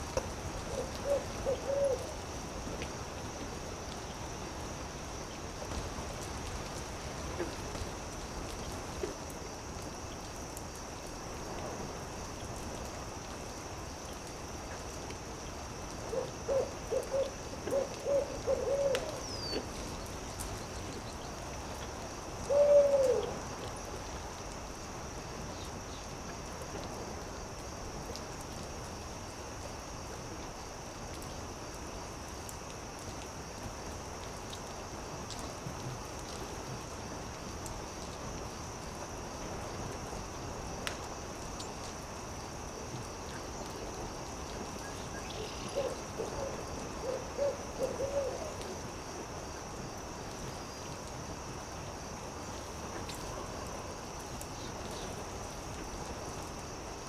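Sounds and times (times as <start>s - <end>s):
campfire crackling: 0.0s - 57.0s
owl hooting: 0.7s - 2.1s, 16.1s - 19.6s, 22.5s - 23.3s, 45.8s - 48.6s.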